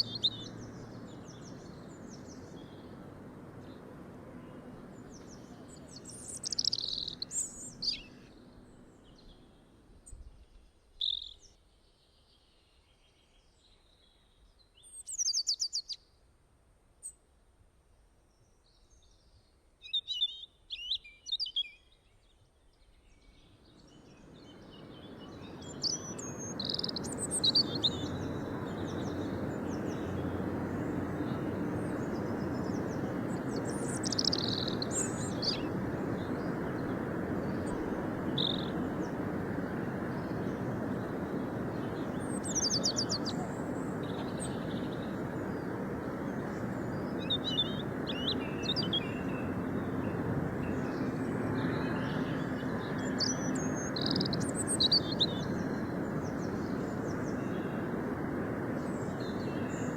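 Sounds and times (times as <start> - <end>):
small birds chirping: 0.0 - 9.6, 14.8 - 16.0, 23.1 - 59.9
steady rushing noise: 24.1 - 59.9.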